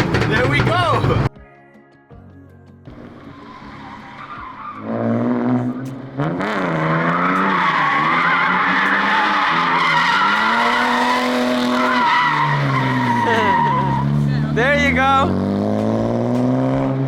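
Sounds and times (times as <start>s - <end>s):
car engine revving: 0.0s - 1.3s, 2.9s - 17.0s
tyres squealing: 6.8s - 15.3s.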